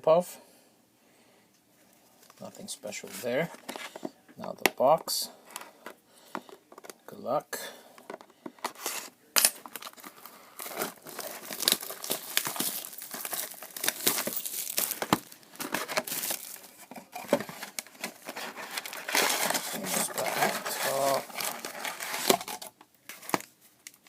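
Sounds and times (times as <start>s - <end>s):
plastic wrapping crinkling and tearing: 8.7s - 24.0s.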